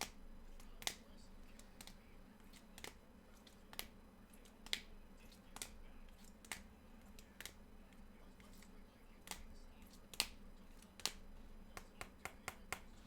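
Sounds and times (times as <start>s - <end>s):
cards clicking being set down: 0.0s - 7.6s, 8.4s - 9.5s, 10.1s - 11.2s.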